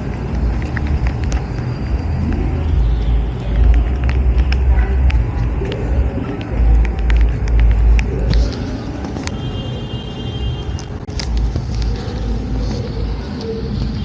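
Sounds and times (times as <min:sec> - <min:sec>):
sharp ticks: 0:00.0 - 0:09.8
vehicles rumbling past: 0:00.0 - 0:14.0.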